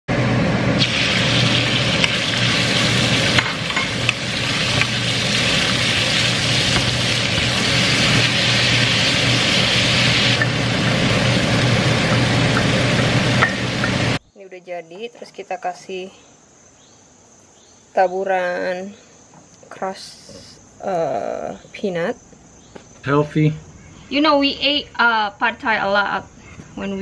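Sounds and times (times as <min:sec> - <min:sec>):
steady low hum: 0:00.1 - 0:14.6
beef sizzling in a frying pan: 0:00.8 - 0:14.2.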